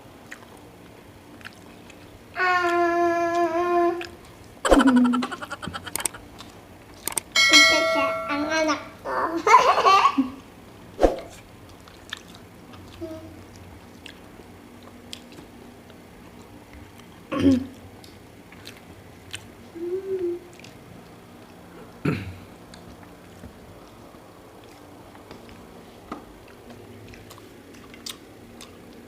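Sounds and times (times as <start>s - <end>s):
person chewing food: 0.2s - 2.8s, 4.0s - 7.2s, 11.6s - 17.2s, 18.0s - 19.7s, 20.5s - 22.0s, 22.6s - 29.0s
mouth clicks and smacks: 4.0s - 7.3s
sharp click: 5.6s - 6.2s, 7.0s - 7.3s.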